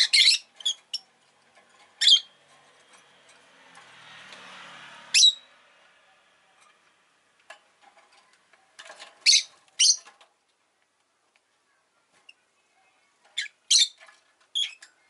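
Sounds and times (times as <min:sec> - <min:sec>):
bird shrill chirps: 0:05.2 - 0:05.5.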